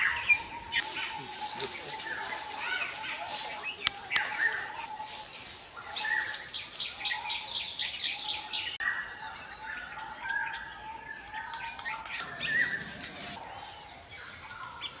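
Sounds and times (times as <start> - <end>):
birds calling and chirping: 0.0 - 15.0
swooping bird call: 12.2 - 13.4.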